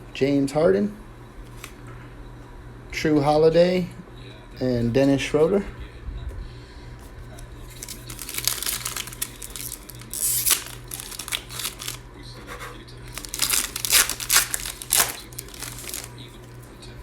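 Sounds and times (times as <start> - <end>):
plastic wrapper crinkling and tearing: 7.6 - 12.1, 13.0 - 16.7.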